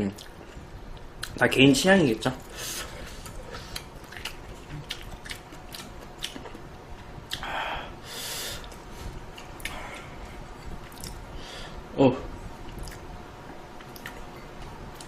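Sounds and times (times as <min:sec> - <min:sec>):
person chewing noodles: 0:02.4 - 0:11.2, 0:12.6 - 0:15.0
wet mouth clicks: 0:10.9 - 0:11.2.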